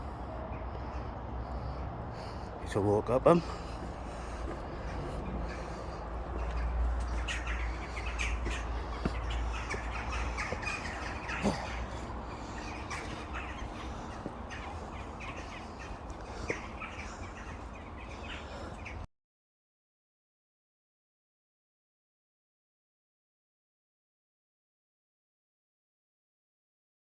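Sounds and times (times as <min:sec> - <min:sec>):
bird calls and chirps: 0:03.4 - 0:19.1.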